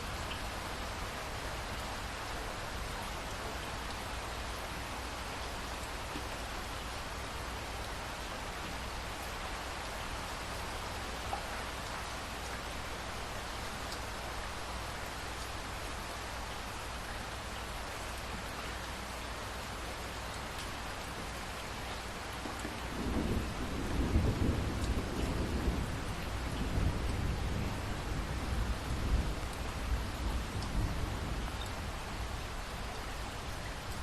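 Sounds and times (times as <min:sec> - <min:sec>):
steady rain falling: 0:00.0 - 0:34.0
low rumble of thunder: 0:22.6 - 0:32.5.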